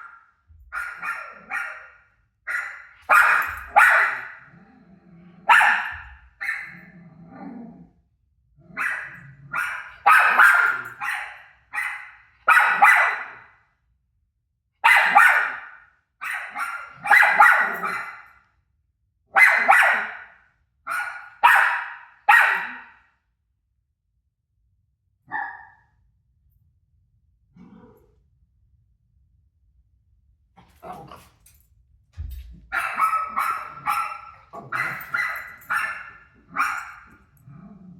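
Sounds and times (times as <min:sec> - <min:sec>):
dog barking: 0:00.0 - 0:04.6, 0:05.4 - 0:06.9, 0:08.7 - 0:13.6, 0:14.8 - 0:18.4, 0:19.3 - 0:23.1, 0:25.3 - 0:25.8, 0:32.6 - 0:37.3.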